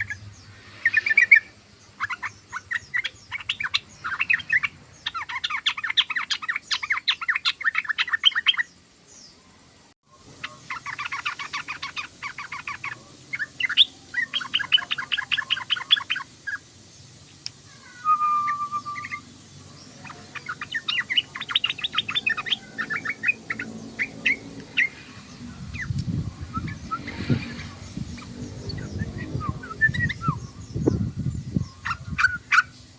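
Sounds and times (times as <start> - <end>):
bird chattering: 0.0 - 8.7, 10.3 - 16.8, 17.6 - 32.9
low rumble: 23.4 - 31.8.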